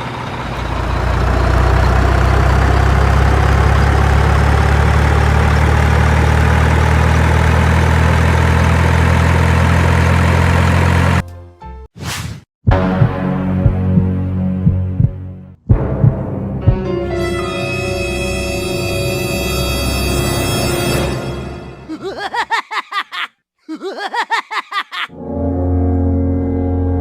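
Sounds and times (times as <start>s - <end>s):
heavy vehicle engine running: 0.0s - 11.2s
brief swish: 12.0s - 12.5s.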